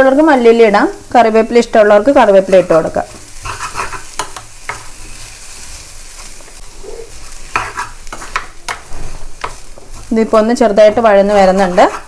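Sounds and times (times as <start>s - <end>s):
food sizzling in a pan: 0.0s - 12.0s
utensil scraping a pan: 2.5s - 5.5s, 6.9s - 12.0s.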